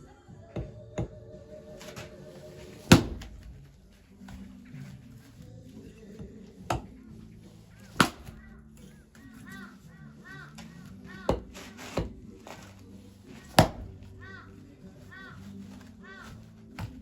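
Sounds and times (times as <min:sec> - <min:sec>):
axe chopping firewood: 0:01.8 - 0:05.0, 0:06.6 - 0:09.6, 0:10.5 - 0:14.3, 0:15.7 - 0:17.0.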